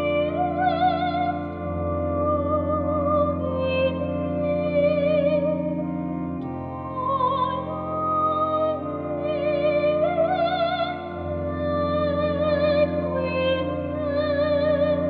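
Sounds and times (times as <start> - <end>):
classical singer with vibrato: 0.0 - 5.8, 6.9 - 15.0
sustained keyboard chords: 0.0 - 15.0.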